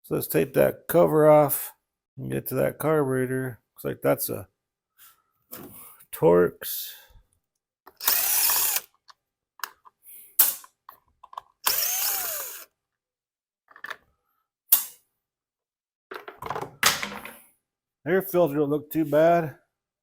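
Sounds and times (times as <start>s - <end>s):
small clicks and knocks: 10.6s - 11.6s
power driver running: 11.7s - 12.7s.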